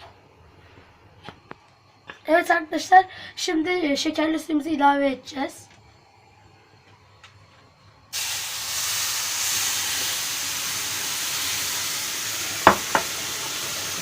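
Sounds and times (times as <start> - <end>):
syrup sizzling in hot oil: 8.1 - 14.0
sharp knocks: 12.7 - 13.1.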